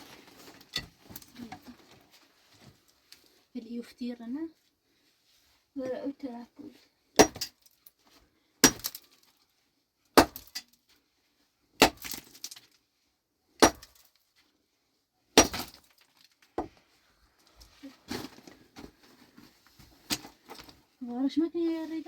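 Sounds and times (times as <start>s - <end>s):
hand tool striking hard material: 7.2s - 7.6s, 8.6s - 9.1s, 10.2s - 10.7s, 11.8s - 12.4s, 13.6s - 14.1s, 15.4s - 15.9s.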